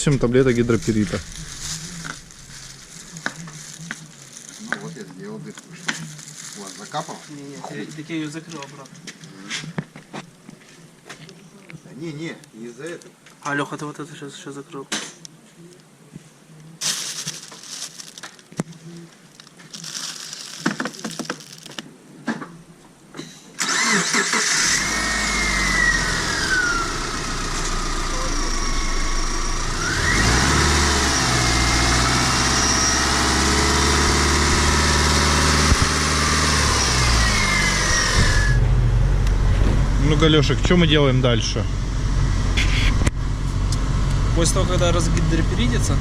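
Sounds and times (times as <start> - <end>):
car engine starting and running: 0.0 - 3.0, 23.6 - 46.0.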